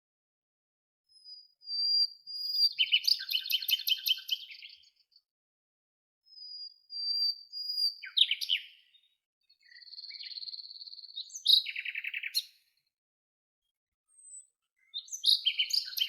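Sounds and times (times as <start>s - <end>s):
songbird singing: 1.1s - 5.3s, 6.3s - 12.9s, 14.1s - 16.0s.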